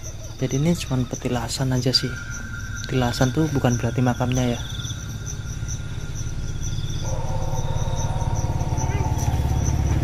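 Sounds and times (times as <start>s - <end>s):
high insect chirps: 0.0s - 10.0s
motorcycle engine running: 7.1s - 10.0s.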